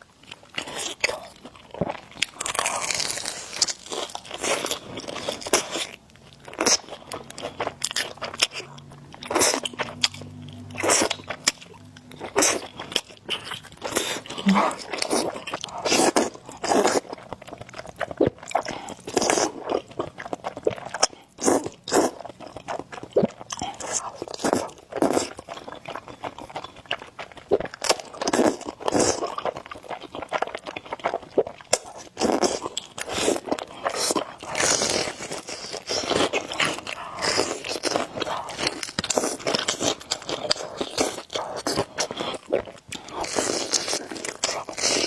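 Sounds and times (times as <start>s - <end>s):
chewing and biting: 0.2s - 45.0s
crunches and mouth noises: 13.9s - 15.2s.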